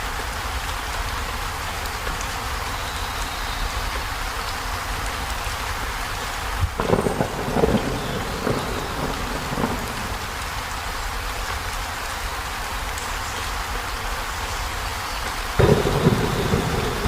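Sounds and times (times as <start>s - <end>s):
heavy rain on a metal roof: 0.0s - 17.0s
crackling rumble: 6.7s - 10.6s, 15.6s - 17.0s.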